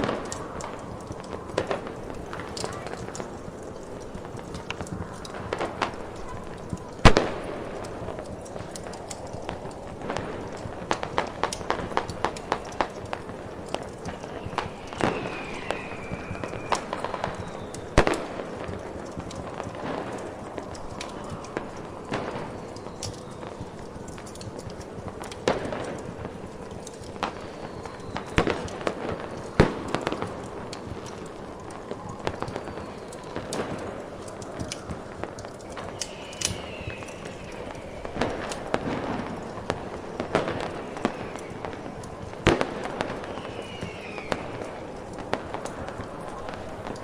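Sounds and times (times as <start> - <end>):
fireworks bangs and crackles: 0.0 - 47.0
snowstorm wind hiss: 0.0 - 47.0
falling firework whistles: 13.8 - 18.8, 27.2 - 46.9.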